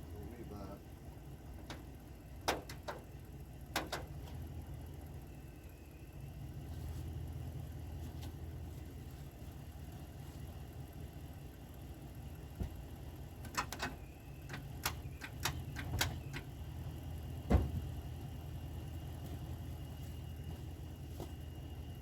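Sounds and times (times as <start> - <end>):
engine idling: 0.0 - 22.0
sharp metallic clicks and knocks: 1.6 - 3.1, 3.7 - 4.1, 13.4 - 16.5
loud thump: 17.5 - 17.9.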